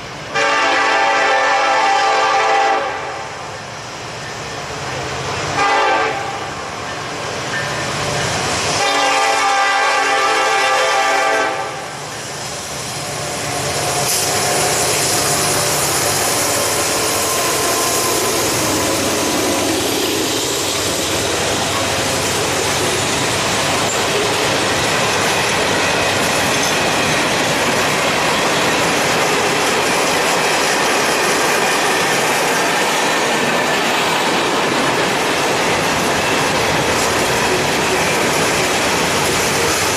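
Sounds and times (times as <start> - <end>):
train wheels rumbling on rails: 0.0 - 39.9
locomotive horn blasts: 0.3 - 3.2, 5.6 - 6.5, 8.8 - 11.8.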